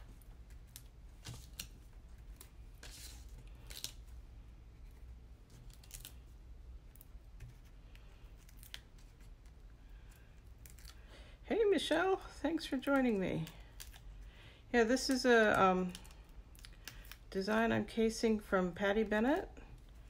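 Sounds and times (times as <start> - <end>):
paper rustling: 0.0 - 4.2
faint steady hum: 0.0 - 20.0.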